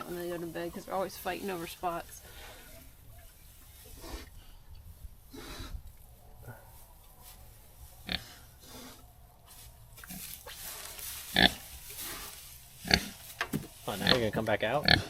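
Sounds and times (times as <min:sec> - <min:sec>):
pigs grunting: 0:08.0 - 0:09.2, 0:11.3 - 0:13.2, 0:13.9 - 0:15.0.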